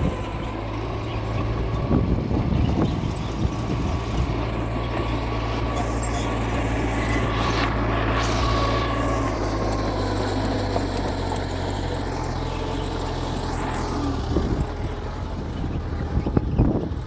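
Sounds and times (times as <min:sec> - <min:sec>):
bulldozer diesel engine: 0:00.0 - 0:17.0
high squeals: 0:00.1 - 0:14.7.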